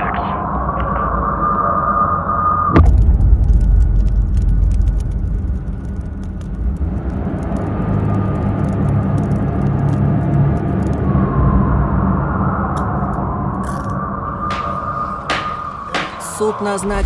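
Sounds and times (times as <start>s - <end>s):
faint crackles: 2.9s - 11.1s.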